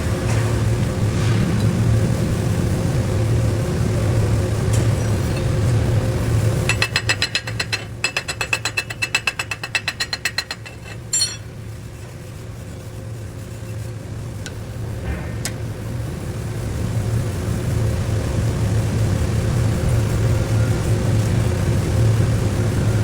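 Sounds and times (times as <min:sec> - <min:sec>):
low machine hum: 0:00.0 - 0:23.0
hammer striking metal: 0:06.7 - 0:11.6
sharp metal clang: 0:09.8 - 0:11.6.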